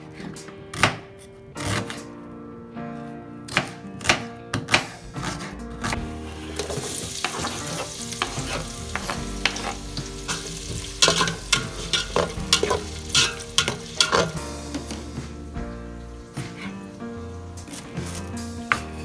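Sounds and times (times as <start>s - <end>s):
wooden spoon scraping a pot: 5.2s - 15.4s
onions sizzling in oil: 6.3s - 15.3s
pot knocking: 6.6s - 15.0s.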